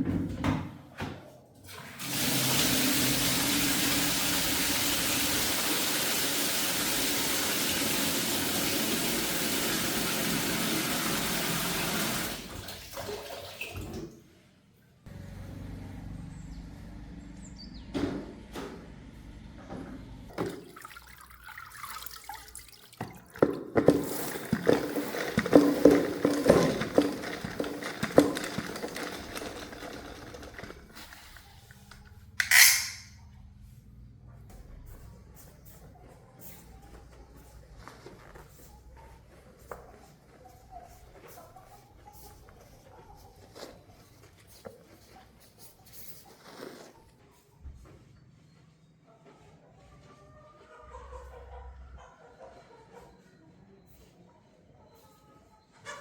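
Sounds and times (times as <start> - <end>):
water gushing: 1.9 - 14.0
knocks and clatter: 23.4 - 31.2.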